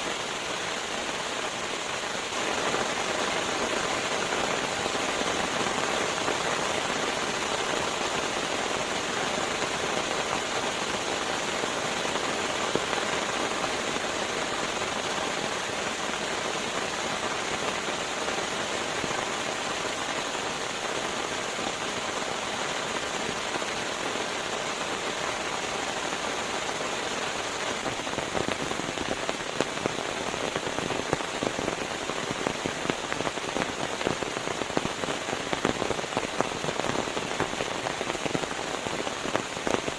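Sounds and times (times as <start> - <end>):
steady rain hiss: 0.0 - 39.9
raindrop hits: 27.6 - 39.9.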